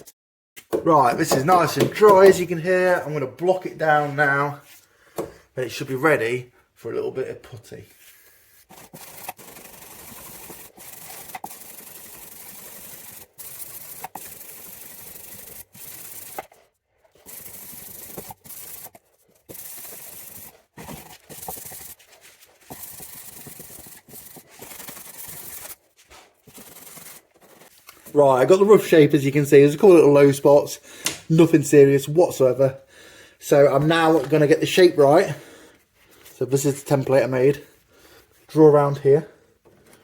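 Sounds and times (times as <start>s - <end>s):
sandpaper scratching filler: 8.0s - 16.6s, 17.2s - 28.6s.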